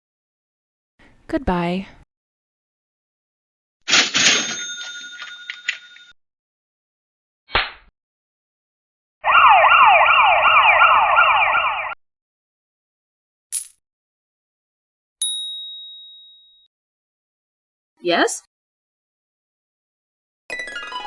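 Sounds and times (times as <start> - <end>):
siren sweeping up and down: 9.2 - 12.0.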